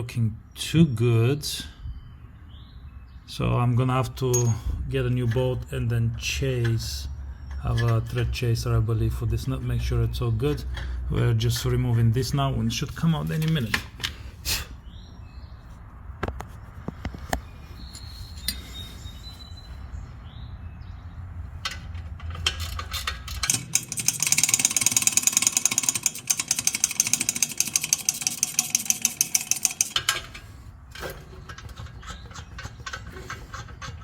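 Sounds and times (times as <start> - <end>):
metal clicks: 17.3 - 18.9, 21.5 - 34.0
socket ratchet clicking: 21.7 - 34.0.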